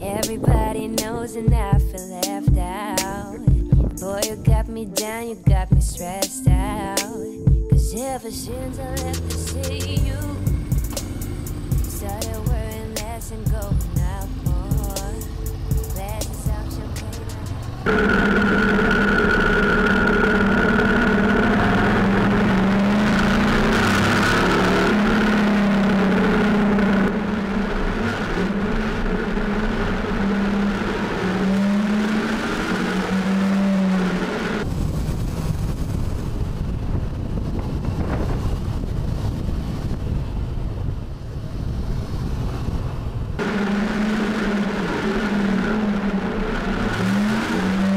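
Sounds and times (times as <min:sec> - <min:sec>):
wind rumble on microphone: 0:00.0 - 0:02.0, 0:03.4 - 0:04.8, 0:34.4 - 0:47.9
motorcycle engine running: 0:08.9 - 0:40.9, 0:43.1 - 0:47.9.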